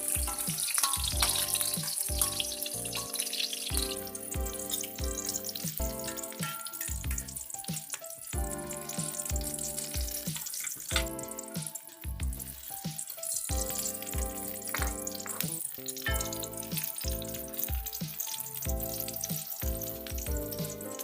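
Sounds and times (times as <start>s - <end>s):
background music with beat: 0.0s - 21.0s
food sizzling in hot oil: 0.0s - 21.0s.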